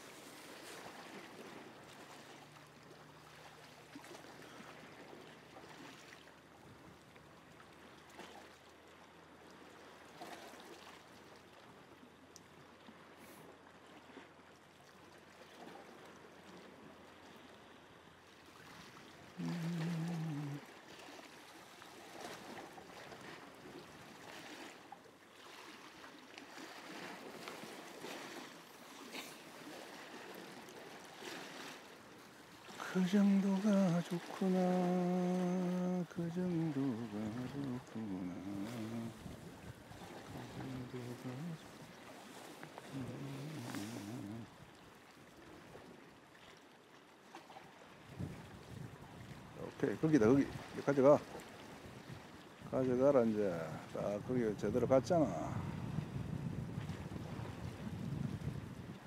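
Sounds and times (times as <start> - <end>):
seawater lapping against rocks: 0.0 - 59.0
low humming tone: 19.4 - 20.7, 32.8 - 41.9, 42.6 - 44.6.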